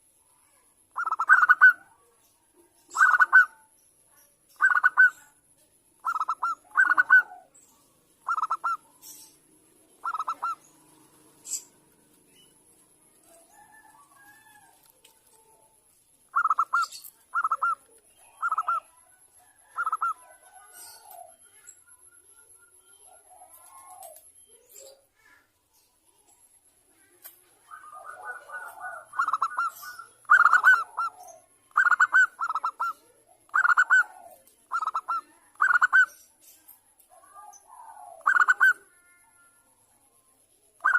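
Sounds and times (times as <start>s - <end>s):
higher-pitched bird call: 1.0s - 1.9s, 2.9s - 3.5s, 4.6s - 5.2s, 6.0s - 7.5s, 8.2s - 8.9s, 10.0s - 10.8s, 16.3s - 18.9s, 27.7s - 36.1s, 38.2s - 38.9s
dove cooing: 1.0s - 2.0s, 2.9s - 3.6s, 4.6s - 5.2s, 6.0s - 7.6s, 8.2s - 12.1s, 16.3s - 21.6s, 23.0s - 24.3s, 27.6s - 36.2s, 37.2s - 39.4s.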